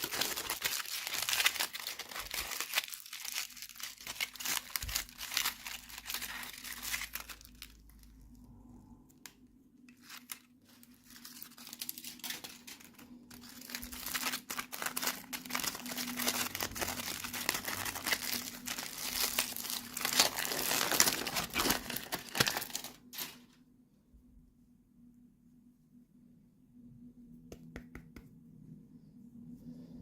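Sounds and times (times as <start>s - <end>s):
packaging crinkling and tearing: 0.0s - 8.4s, 9.8s - 23.6s.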